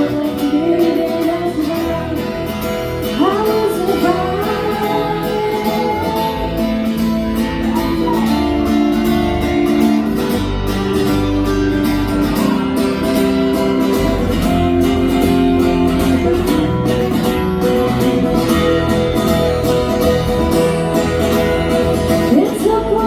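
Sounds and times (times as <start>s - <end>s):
guitar: 0.0s - 23.0s
live band instrumental: 0.0s - 23.0s.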